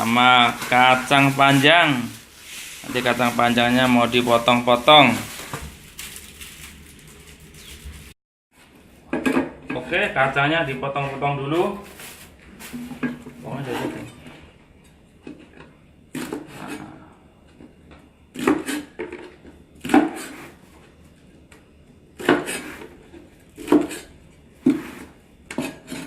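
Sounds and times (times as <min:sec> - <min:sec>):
knife chopping on wooden board: 0:23.6 - 0:26.0.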